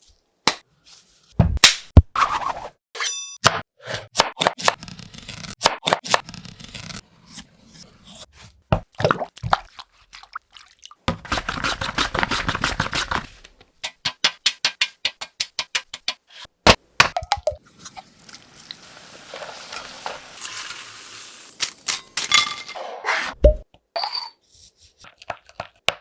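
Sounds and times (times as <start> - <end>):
frying hiss: 17.6 - 22.2.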